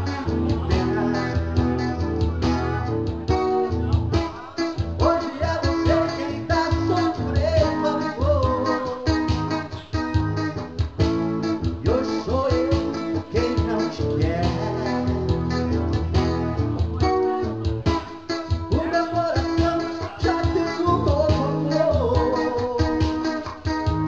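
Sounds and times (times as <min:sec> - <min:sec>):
person singing: 0:00.0 - 0:10.2, 0:11.6 - 0:24.0
guitar strumming: 0:00.0 - 0:24.0.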